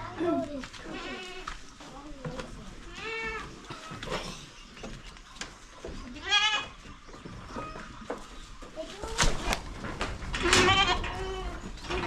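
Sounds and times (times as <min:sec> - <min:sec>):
goat kids bleating: 0:00.1 - 0:01.6, 0:02.9 - 0:04.1, 0:06.1 - 0:06.8, 0:10.4 - 0:12.0.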